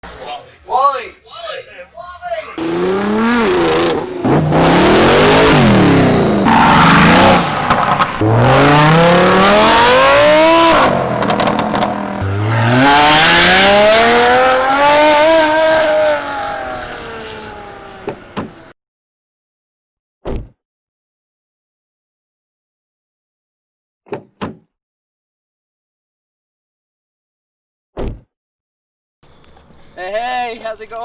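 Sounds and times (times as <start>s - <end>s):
car engines revving: 0.0s - 0.7s, 2.6s - 18.7s.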